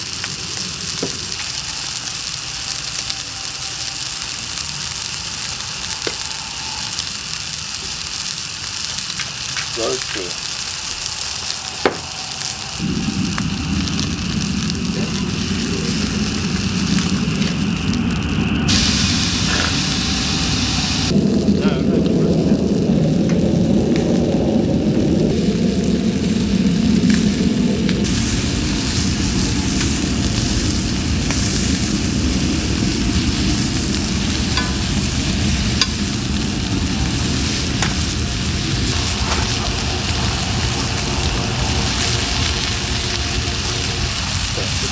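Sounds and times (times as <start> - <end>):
low rushing noise: 0.0 - 8.4, 9.6 - 44.9
steak sizzling: 0.0 - 44.9
wood fire crackling: 0.0 - 44.9
sharp snap of fire: 9.0 - 13.5.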